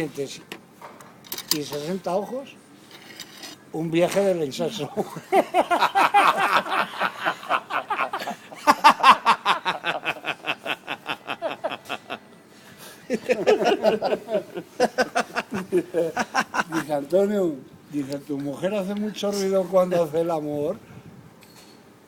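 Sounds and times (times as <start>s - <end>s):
hearty laughter: 4.8s - 16.9s.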